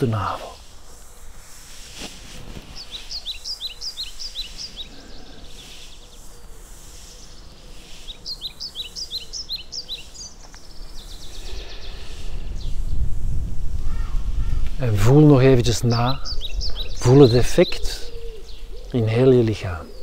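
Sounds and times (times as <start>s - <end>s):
faint outdoor background noise: 0.0s - 20.0s
songbird singing high notes: 7.2s - 13.0s.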